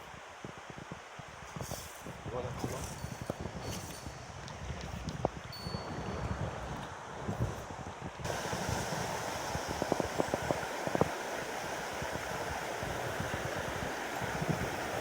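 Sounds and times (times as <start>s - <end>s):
river rushing over rocks: 8.3s - 15.0s.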